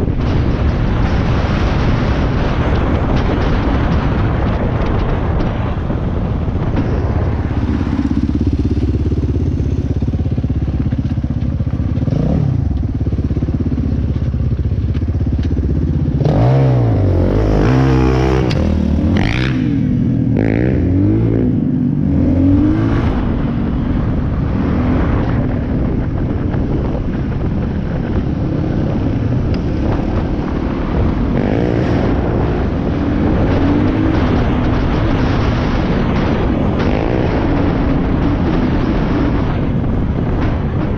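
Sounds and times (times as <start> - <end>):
dirt bike engine revving: 7.0 - 14.2, 15.7 - 23.5, 28.5 - 39.6.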